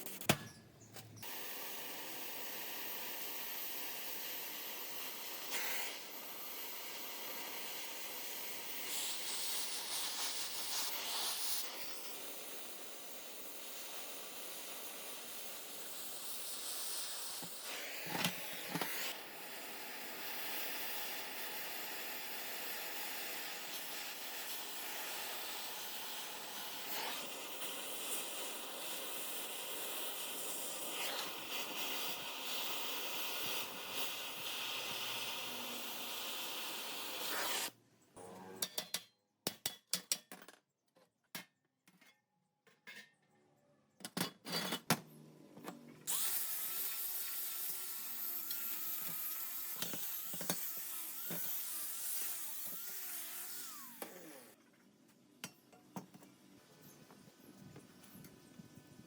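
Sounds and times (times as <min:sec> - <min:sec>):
spraying hiss: 0:01.2 - 0:37.7.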